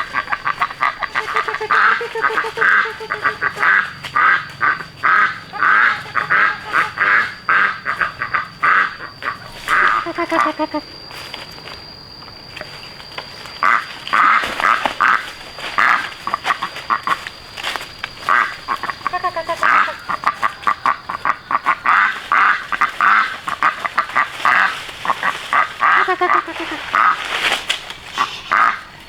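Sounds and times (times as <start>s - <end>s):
short harsh animal calls: 0.0s - 10.9s, 18.3s - 21.2s, 25.5s - 27.2s
longer pitch-bending animal calls: 0.0s - 11.0s, 18.2s - 27.1s
faint high whine: 0.0s - 29.0s.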